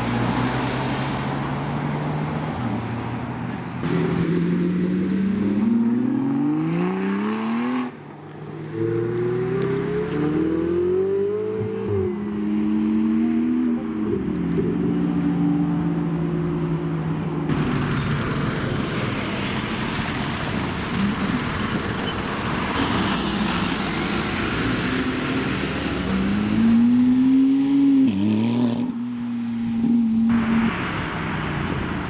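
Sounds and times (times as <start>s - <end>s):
traffic and street noise: 0.0s - 32.0s
engine revving: 3.8s - 8.0s, 17.5s - 29.0s
sports car engines running: 14.0s - 24.0s.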